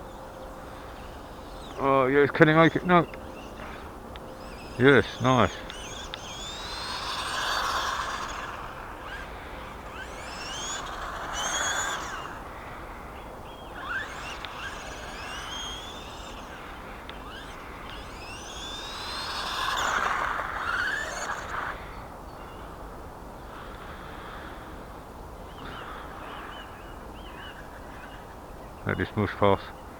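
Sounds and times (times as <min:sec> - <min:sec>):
electric motor whining: 0:00.0 - 0:22.9.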